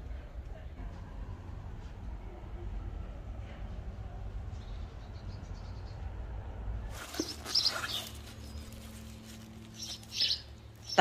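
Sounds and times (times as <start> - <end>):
low steady rumble: 0.0 - 7.2
small birds chirping: 6.9 - 11.0.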